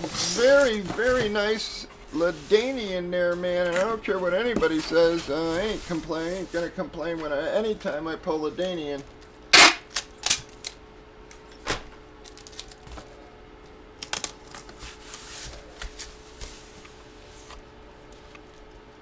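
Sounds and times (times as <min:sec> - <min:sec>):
plastic or paper rustle: 0:00.0 - 0:02.8, 0:03.4 - 0:08.0, 0:12.2 - 0:13.2, 0:14.0 - 0:17.6.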